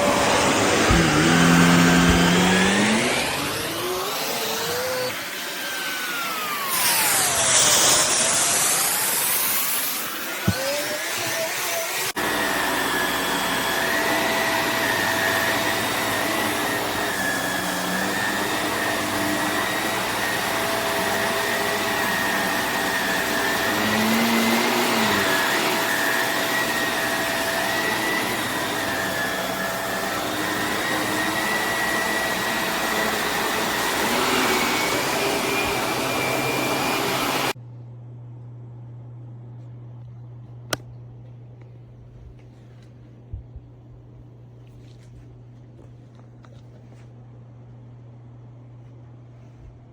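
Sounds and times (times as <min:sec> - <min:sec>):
vacuum cleaner running: 0:00.0 - 0:37.6.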